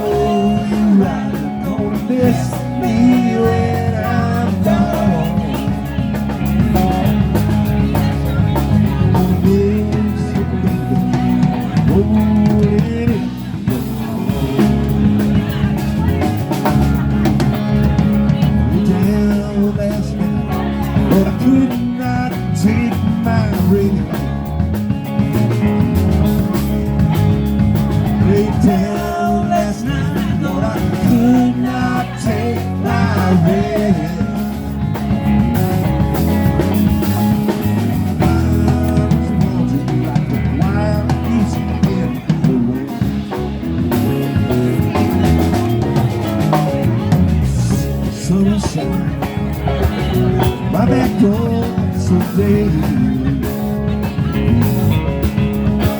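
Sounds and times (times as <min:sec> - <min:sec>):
person singing: 0:00.0 - 0:06.9, 0:07.8 - 0:16.2, 0:18.4 - 0:24.6, 0:28.0 - 0:35.4, 0:37.4 - 0:44.4, 0:46.6 - 0:54.4
live band playing: 0:00.0 - 0:55.9.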